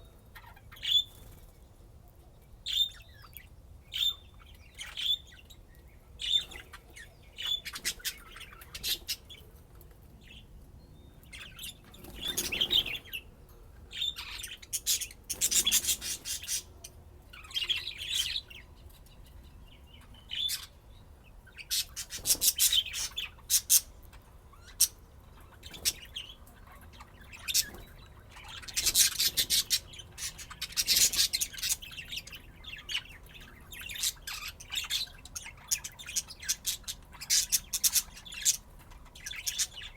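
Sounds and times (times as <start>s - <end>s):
budgerigars chirping: 0.4s - 1.4s, 2.7s - 5.6s, 6.2s - 9.4s, 11.3s - 13.3s, 14.0s - 16.8s, 20.0s - 20.8s, 21.5s - 39.9s.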